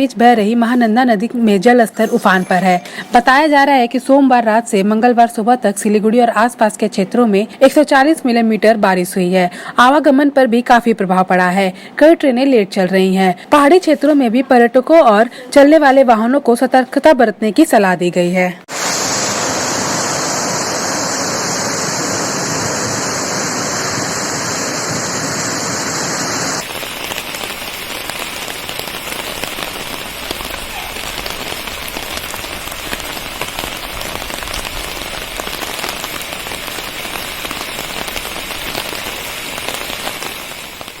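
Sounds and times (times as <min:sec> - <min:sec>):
heavy rain falling: 0:21.9 - 0:41.0.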